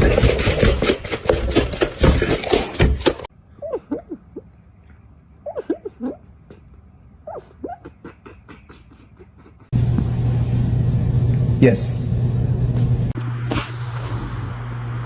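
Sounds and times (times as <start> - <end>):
loud dense clattering: 0.0 - 3.3
dog whining: 7.2 - 9.7.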